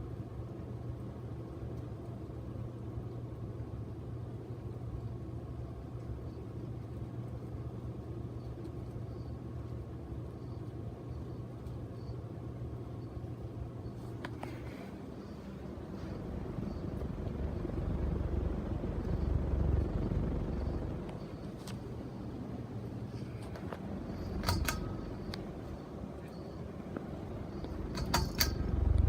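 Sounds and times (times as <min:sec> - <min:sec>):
ceiling fan humming: 0:00.0 - 0:29.0
click: 0:24.4 - 0:25.5.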